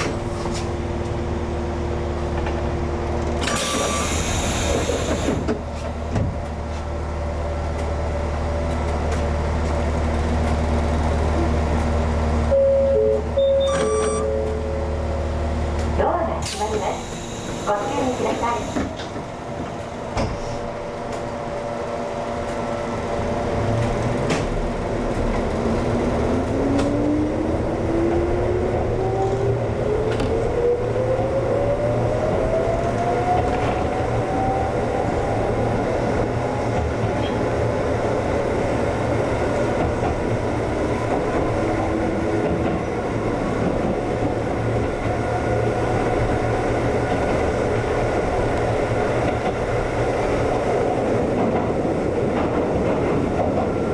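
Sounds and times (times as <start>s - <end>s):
train wheel and running noise: 0.0s - 53.9s
electric train motor whine: 16.6s - 19.1s.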